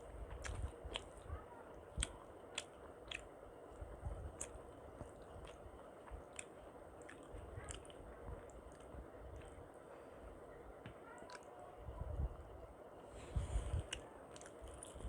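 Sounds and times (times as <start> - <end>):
chewing soft wet food: 0.0 - 15.0
wet mouth clicks and smacks: 2.0 - 3.3, 4.4 - 4.6.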